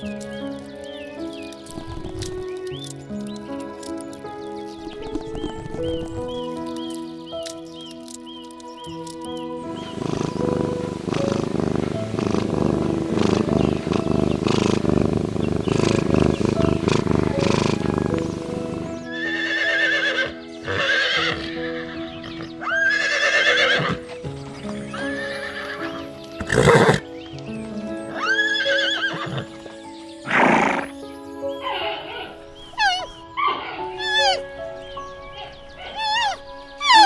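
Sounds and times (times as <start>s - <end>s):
soft background music: 0.0s - 37.0s
horse whinnying: 15.8s - 24.2s, 24.9s - 27.1s, 28.2s - 29.6s, 30.3s - 31.0s, 31.7s - 34.5s, 35.4s - 37.0s.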